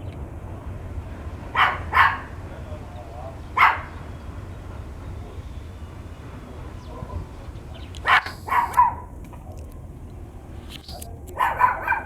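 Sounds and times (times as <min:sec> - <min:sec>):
steady low rumble: 0:00.0 - 0:12.0
dog barking: 0:01.5 - 0:02.4, 0:03.6 - 0:04.0, 0:08.0 - 0:09.1, 0:11.3 - 0:12.0.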